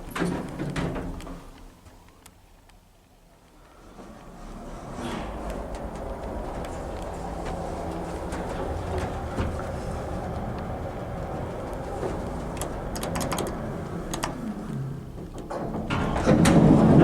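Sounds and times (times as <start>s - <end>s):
lift humming and rumbling: 3.2s - 17.0s
sharp clicks: 10.2s - 15.5s.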